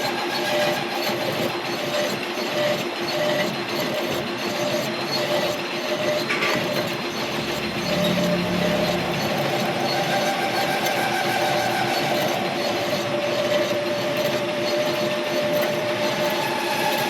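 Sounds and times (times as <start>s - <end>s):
metal lathe running: 0.0s - 17.0s
wavering machine tones: 7.0s - 16.5s.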